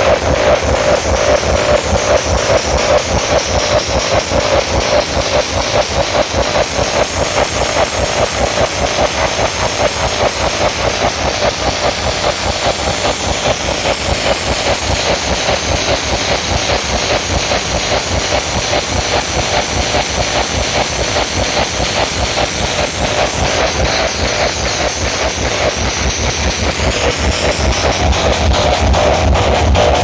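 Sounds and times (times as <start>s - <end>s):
distorted loud pa music: 0.0s - 9.4s, 20.0s - 30.0s
fast bass pulse: 0.0s - 30.0s.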